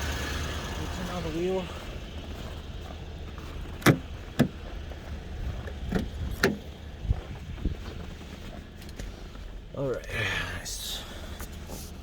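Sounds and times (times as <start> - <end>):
car engine idling: 0.0 - 12.0
steering creaks: 3.5 - 4.8, 5.4 - 7.2.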